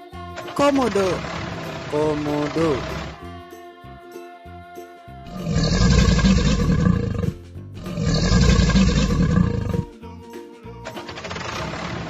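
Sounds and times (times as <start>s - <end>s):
soft background music: 0.0s - 12.0s
loud rough roar: 0.4s - 3.2s, 5.3s - 9.9s, 10.9s - 12.0s.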